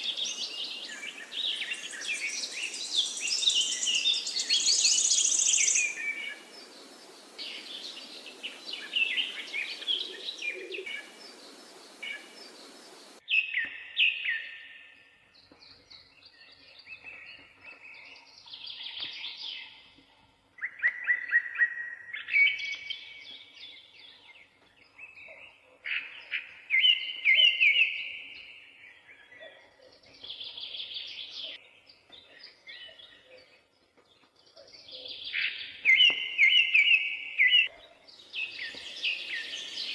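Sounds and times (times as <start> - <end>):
hissy background noise: 0.0 - 13.2.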